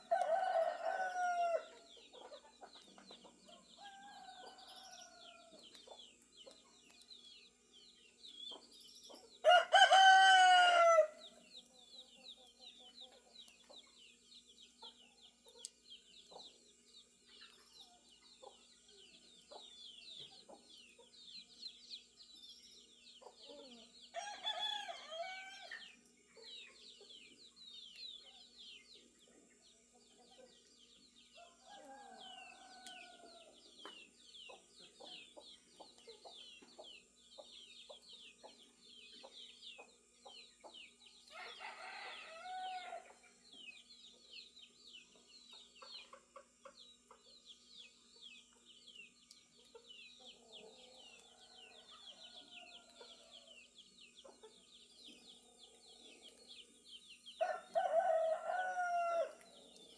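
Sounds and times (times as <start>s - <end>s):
roosters crowing: 0.0s - 1.8s, 9.4s - 11.3s, 24.1s - 25.8s, 41.3s - 43.2s, 57.4s - 59.4s
small birds chirping: 0.0s - 59.9s.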